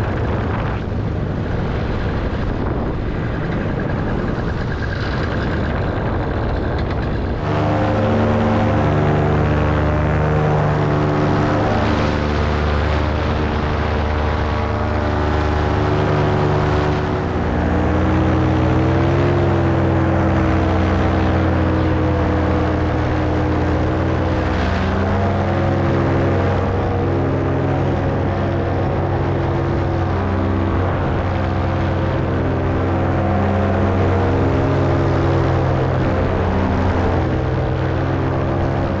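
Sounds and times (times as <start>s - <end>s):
paramotor engine and propeller: 0.0s - 39.0s.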